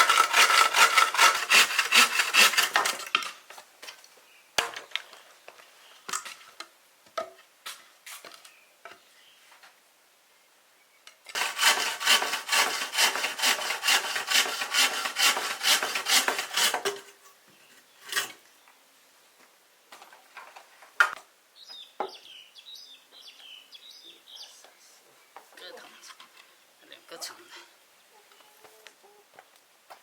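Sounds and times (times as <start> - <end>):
hand saw cutting wood: 0.0 - 3.4, 11.3 - 17.2, 18.1 - 18.4.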